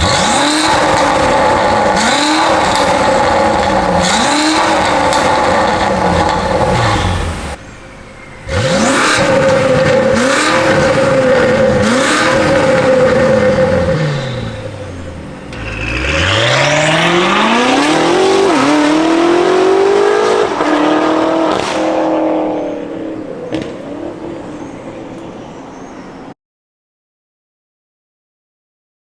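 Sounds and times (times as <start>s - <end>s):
car engine accelerating hard: 0.0s - 7.6s, 8.4s - 25.3s
exhaust pops: 0.0s - 7.6s, 8.5s - 19.6s, 21.4s - 22.5s, 23.5s - 25.3s.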